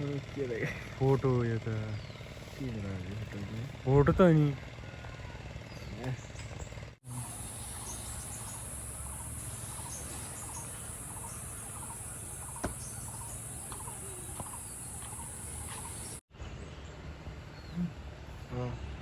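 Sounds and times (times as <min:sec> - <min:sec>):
insects shrilling: 0:07.1 - 0:16.2
short insect chirps: 0:07.1 - 0:16.2.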